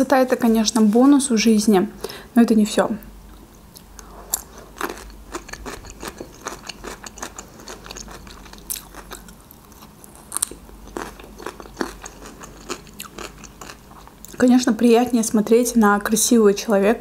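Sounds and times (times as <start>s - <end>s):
person chewing food: 3.7s - 14.4s.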